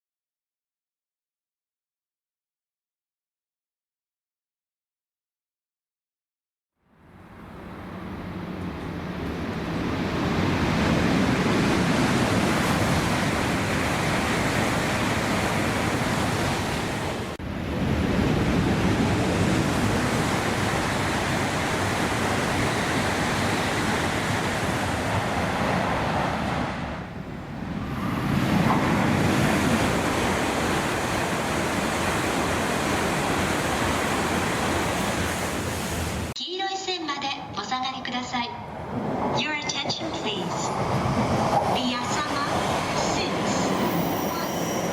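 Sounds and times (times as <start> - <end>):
high-speed trains rushing past: 7.0 - 36.3, 38.6 - 44.9.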